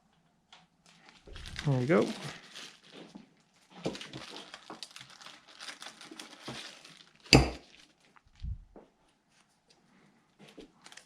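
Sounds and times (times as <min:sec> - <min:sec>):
plastic crinkling: 0:00.9 - 0:08.7, 0:10.4 - 0:11.0.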